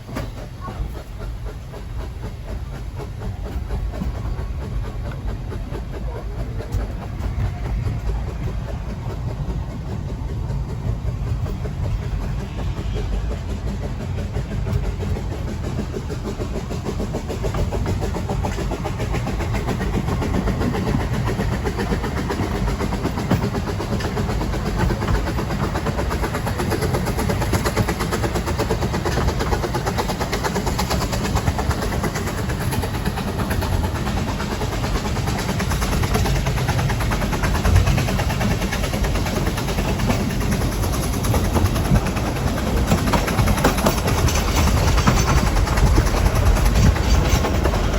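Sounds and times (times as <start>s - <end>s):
train rumbling and rattling: 0.0s - 47.9s.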